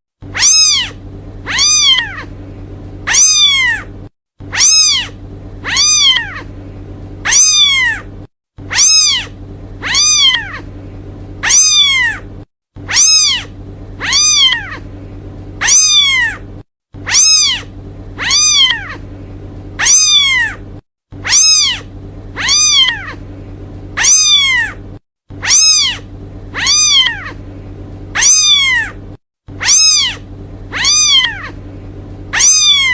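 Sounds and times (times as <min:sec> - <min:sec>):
faint low hum: 0:00.2 - 0:32.9
kitten meowing: 0:00.3 - 0:02.3, 0:03.1 - 0:03.9, 0:04.5 - 0:06.5, 0:07.2 - 0:08.1, 0:08.7 - 0:10.7, 0:11.4 - 0:12.2, 0:12.9 - 0:14.9, 0:15.6 - 0:16.4, 0:17.0 - 0:19.0, 0:19.8 - 0:20.6, 0:21.2 - 0:23.2, 0:24.0 - 0:24.8, 0:25.4 - 0:27.4, 0:28.2 - 0:29.0, 0:29.6 - 0:31.6, 0:32.3 - 0:32.9.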